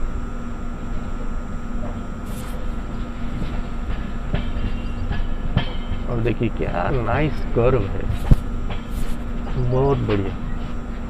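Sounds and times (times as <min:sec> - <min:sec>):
rumble of train wheels on rail: 0:00.0 - 0:11.0
clacks over rail joints: 0:03.4 - 0:10.8.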